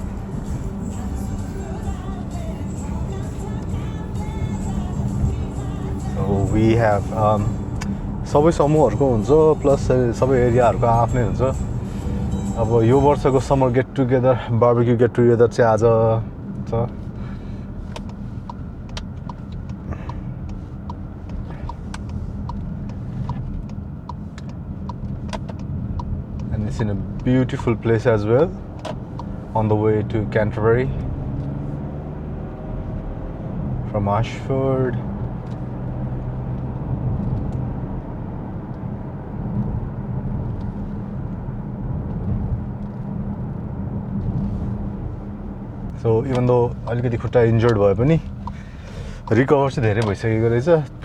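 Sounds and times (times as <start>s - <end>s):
regular ticking: 0.0s - 14.2s, 16.2s - 32.1s, 44.8s - 51.0s
car road and engine rumble: 0.0s - 51.0s.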